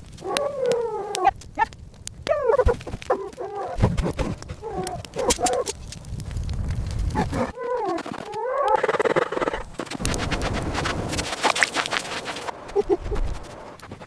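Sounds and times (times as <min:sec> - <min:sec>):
sharp clicks: 0:00.0 - 0:14.0
dog giving falling calls: 0:00.2 - 0:05.8
low rumbling noise: 0:09.6 - 0:14.0.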